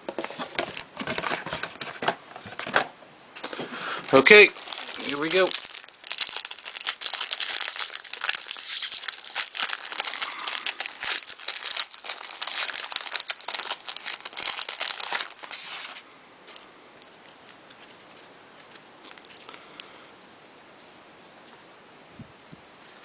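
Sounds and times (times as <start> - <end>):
plastic foil wrapping crinkling: 3.5 - 16.0
plastic foil tearing: 4.1 - 16.0.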